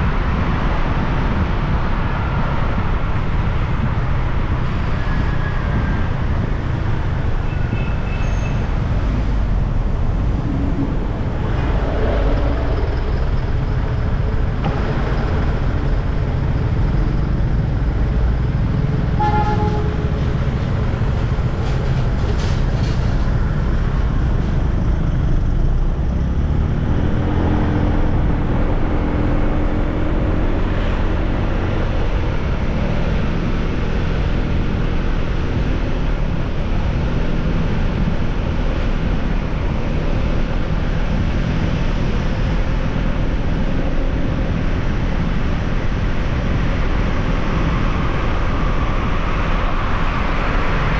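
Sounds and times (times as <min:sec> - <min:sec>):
road and wind noise: 0:00.0 - 0:50.9
vehicles passing: 0:00.0 - 0:50.9
horn toot: 0:19.1 - 0:20.3.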